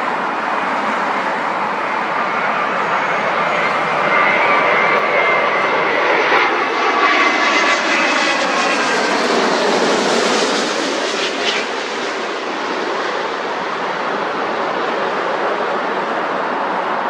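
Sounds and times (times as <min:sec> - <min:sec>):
jet airliner passing by: 0:00.0 - 0:17.0.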